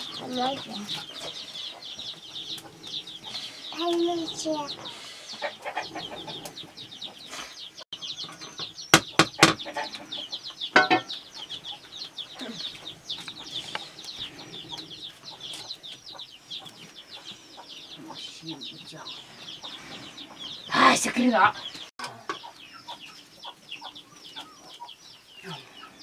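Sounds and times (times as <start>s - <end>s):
birds chirping: 0.0s - 26.0s
loud sharp knocks: 8.9s - 9.7s.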